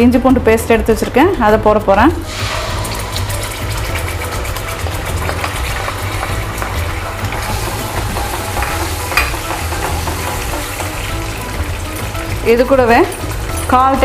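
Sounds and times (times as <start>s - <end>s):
paste sizzling in hot oil: 2.1s - 14.0s
spoon scraping a pan: 2.3s - 12.1s.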